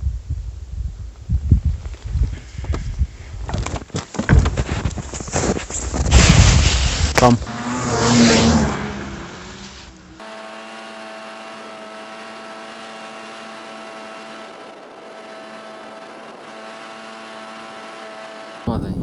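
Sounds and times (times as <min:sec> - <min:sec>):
steady motor hum: 0:08.7 - 0:19.0.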